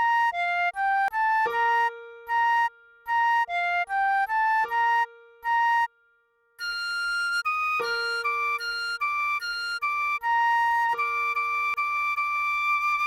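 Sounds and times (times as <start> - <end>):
recorder melody: 6.6 - 13.0.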